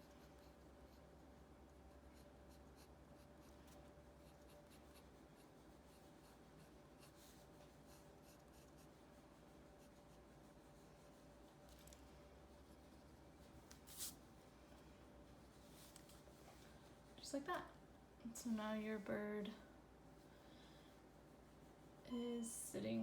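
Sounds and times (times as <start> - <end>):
pencil scratching on paper: 0.0 - 14.1
faint electrical hum: 0.0 - 23.0.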